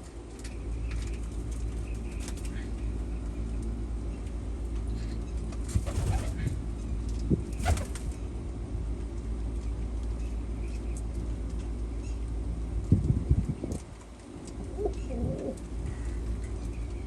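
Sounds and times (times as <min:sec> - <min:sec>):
steady low hum: 0:00.0 - 0:17.0
wings flapping: 0:05.7 - 0:06.6, 0:07.6 - 0:08.2
pigeons cooing: 0:05.8 - 0:06.5, 0:14.6 - 0:15.6.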